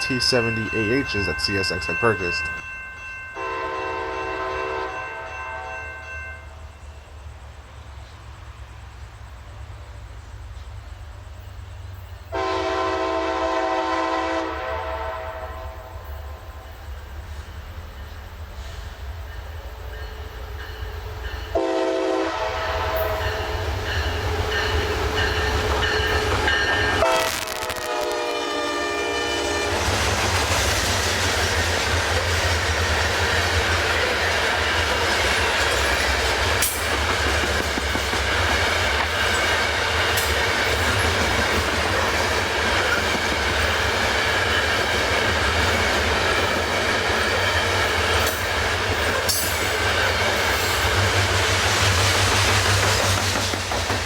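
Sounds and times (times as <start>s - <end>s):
train wheels rumbling on rails: 0.0s - 54.0s
locomotive horn blasts: 3.4s - 5.8s, 12.3s - 16.1s, 21.6s - 23.4s, 26.9s - 29.8s.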